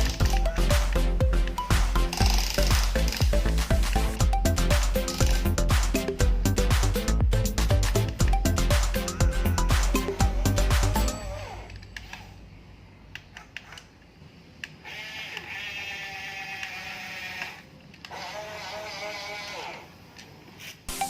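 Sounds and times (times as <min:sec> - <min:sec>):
toy electric motors whirring: 0:00.0 - 0:00.7, 0:01.8 - 0:03.6, 0:04.8 - 0:05.6, 0:14.6 - 0:19.9.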